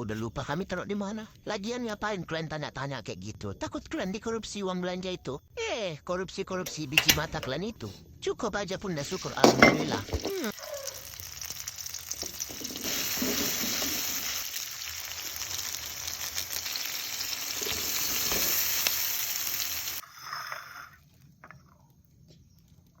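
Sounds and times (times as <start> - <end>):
rice sizzling in a hot pan: 9.0 - 21.2
faint stirring scrapes: 20.0 - 21.3.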